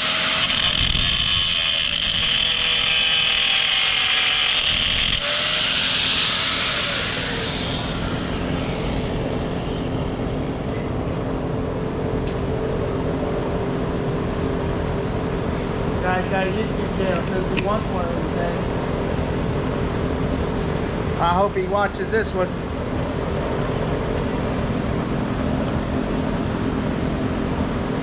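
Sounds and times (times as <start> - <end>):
angle grinder grinding steel: 0.0 - 11.4
engine running: 4.6 - 21.1.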